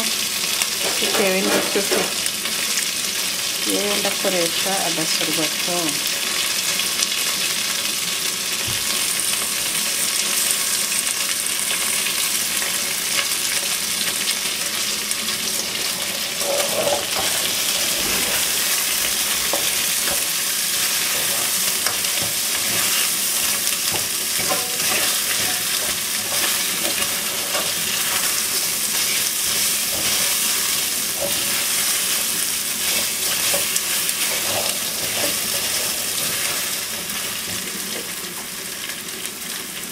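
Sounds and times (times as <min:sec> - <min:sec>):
chicken wings sizzling in a pan: 0:00.0 - 0:39.9
stirring scrapes and clicks: 0:16.4 - 0:20.3, 0:21.1 - 0:28.2.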